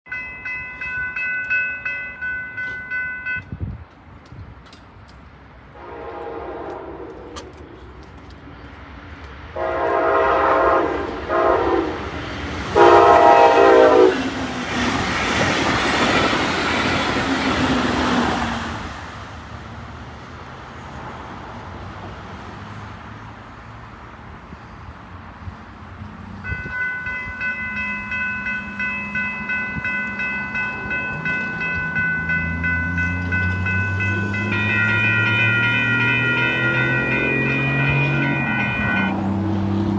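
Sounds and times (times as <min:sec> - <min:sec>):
crossing bell ringing: 0:00.0 - 0:03.6, 0:26.4 - 0:39.9
train rushing past: 0:00.1 - 0:39.9
train horn blasts: 0:05.7 - 0:07.6, 0:09.5 - 0:12.1, 0:12.7 - 0:14.3, 0:26.4 - 0:39.4.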